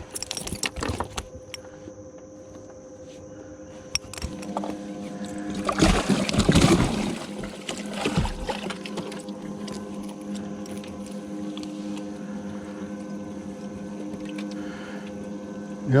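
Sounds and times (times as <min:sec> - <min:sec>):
steady electric hum: 0:00.0 - 0:16.0
water splashing: 0:04.5 - 0:10.0.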